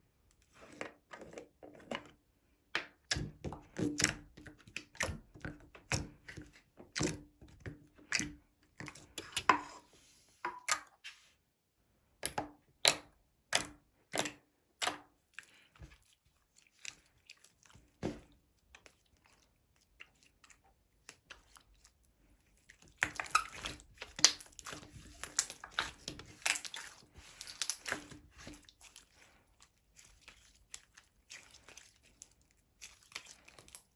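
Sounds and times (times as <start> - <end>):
slime crackling: 23.2 - 33.9.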